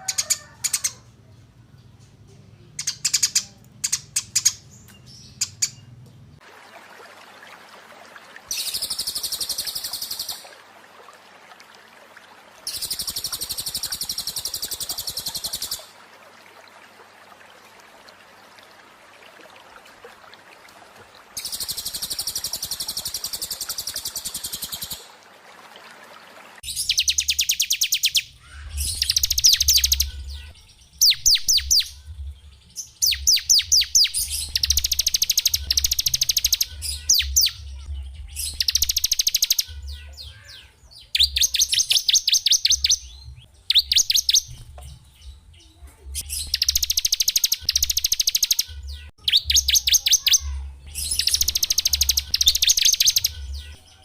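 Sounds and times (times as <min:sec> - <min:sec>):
bird rapid trills and slurred notes: 0:02.8 - 0:06.0, 0:08.5 - 0:10.5, 0:12.6 - 0:16.0, 0:21.4 - 0:25.1, 0:26.6 - 0:54.0
buzzy bird trill: 0:45.7 - 0:54.0.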